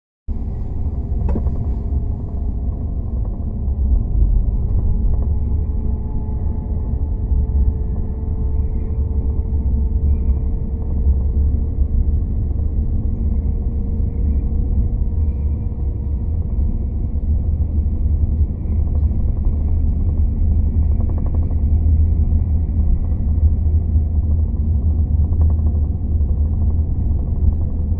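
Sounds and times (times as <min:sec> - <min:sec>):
train rumbling: 0:00.3 - 0:07.2.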